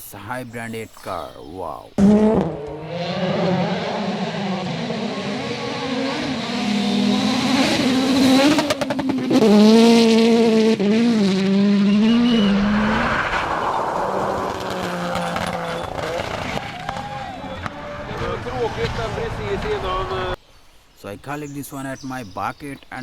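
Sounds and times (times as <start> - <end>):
car engine revving: 2.0 - 20.2.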